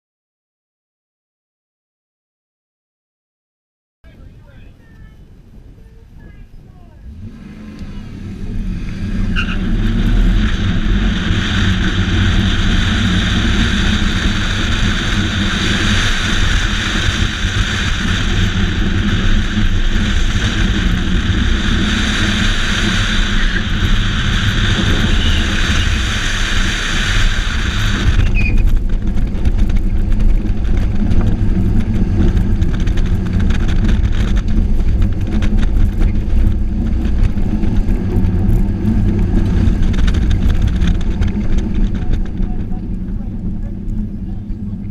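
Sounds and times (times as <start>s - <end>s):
car engine driven hard: 6.9s - 44.9s.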